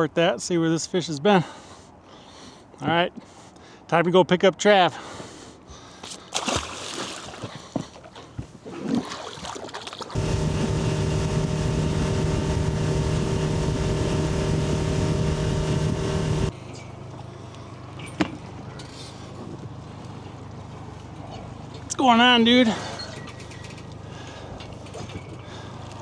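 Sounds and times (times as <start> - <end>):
boat motor running: 10.2 - 16.5.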